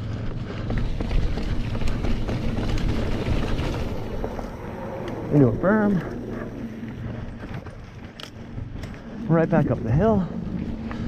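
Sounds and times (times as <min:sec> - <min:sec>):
bike rattling over bumps: 0:00.0 - 0:11.0
tyres rumbling on dirt: 0:00.0 - 0:11.0.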